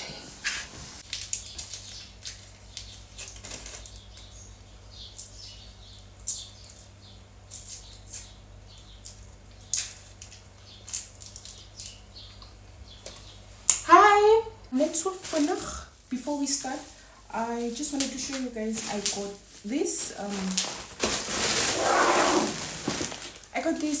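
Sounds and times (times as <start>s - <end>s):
shopping bags rustling: 14.8s - 24.0s.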